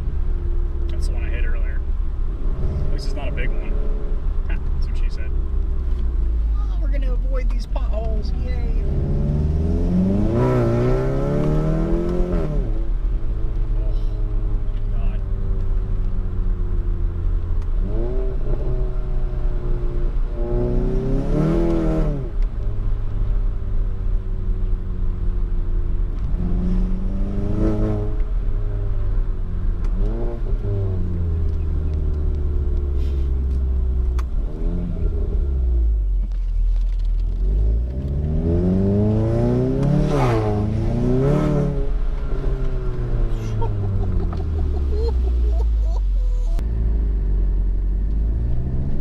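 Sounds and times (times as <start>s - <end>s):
road rumble: 0.0s - 49.0s
turbocharged engine revving: 8.0s - 12.8s, 17.8s - 22.4s, 26.2s - 28.3s, 37.4s - 45.8s.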